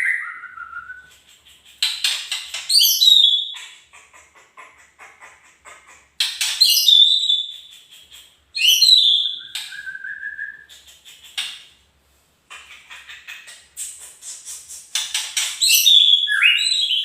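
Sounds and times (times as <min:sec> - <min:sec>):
bird singing whistled phrases: 0:00.0 - 0:01.1, 0:02.7 - 0:03.6, 0:08.6 - 0:10.7, 0:15.6 - 0:17.0
soft bird chatter: 0:00.0 - 0:11.8, 0:12.5 - 0:17.0
long rising bird whistle: 0:08.6 - 0:10.7.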